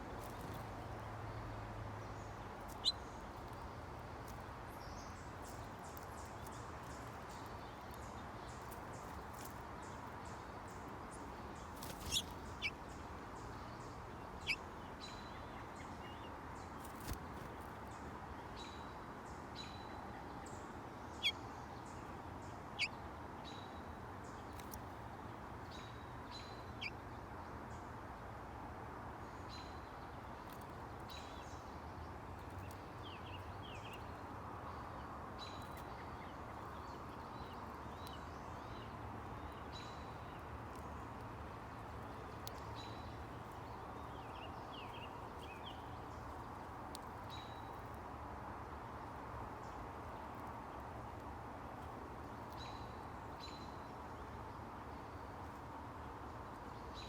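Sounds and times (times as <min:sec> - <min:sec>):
faint high bird peeps: 0:11.7 - 0:12.8.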